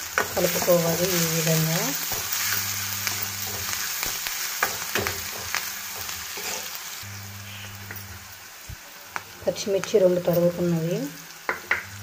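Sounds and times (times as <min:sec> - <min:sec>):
onions sizzling in hot oil: 0:00.0 - 0:12.0
steel spoon scraping pan: 0:00.2 - 0:06.8.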